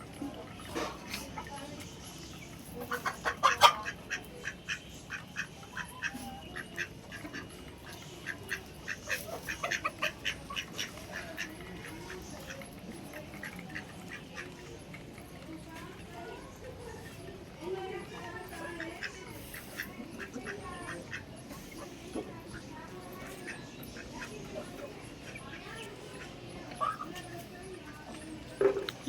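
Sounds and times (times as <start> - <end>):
ducks quacking: 2.7 - 15.2, 18.3 - 27.5.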